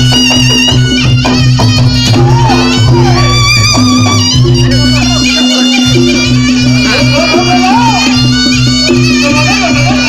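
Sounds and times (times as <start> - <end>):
drum beats: 0.0 - 10.0
nasal reedy wind instrument melody: 0.0 - 10.0.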